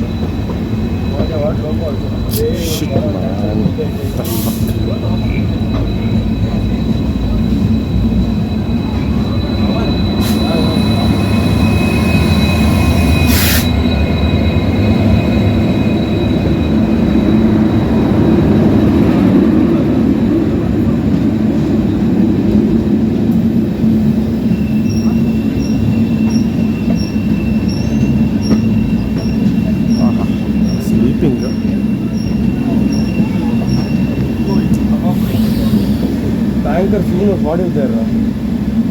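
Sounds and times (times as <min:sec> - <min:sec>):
diesel train engine drone: 0:00.0 - 0:38.9
high wheel squeal: 0:00.0 - 0:38.9
short hiss: 0:13.3 - 0:13.7.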